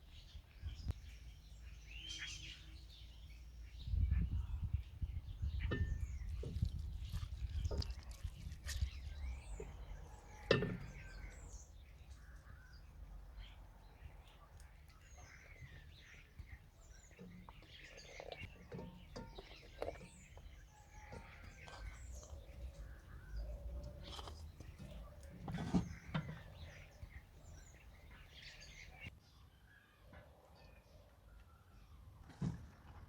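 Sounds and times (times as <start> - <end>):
small birds chirping: 0.0 - 29.1.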